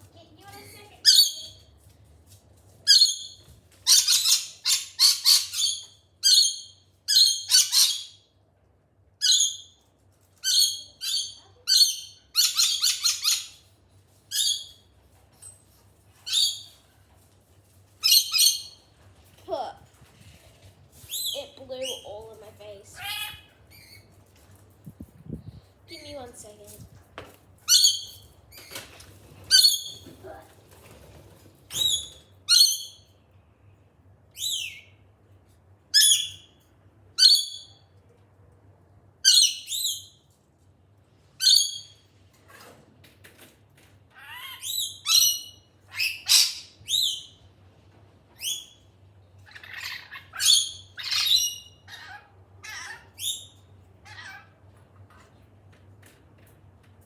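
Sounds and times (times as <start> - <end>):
lorikeets squawking: 44.2 - 47.2, 49.5 - 53.5.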